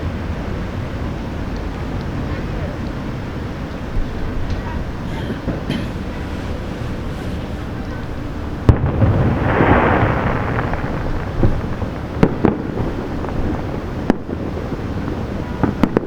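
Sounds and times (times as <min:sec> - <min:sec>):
fireworks hissing crackle: 0:04.8 - 0:16.0
firework shell bursts echoing: 0:05.0 - 0:14.6.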